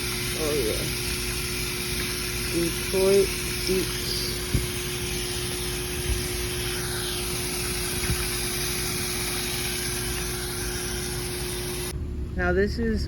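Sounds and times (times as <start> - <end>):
water spraying hiss: 0.0 - 12.0.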